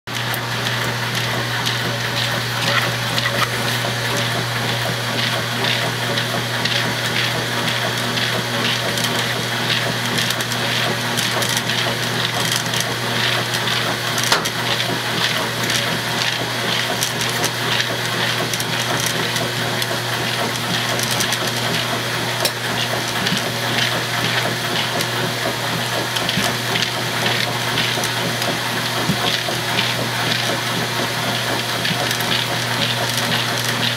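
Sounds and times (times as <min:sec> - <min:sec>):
washing machine humming: 0:00.1 - 0:33.9.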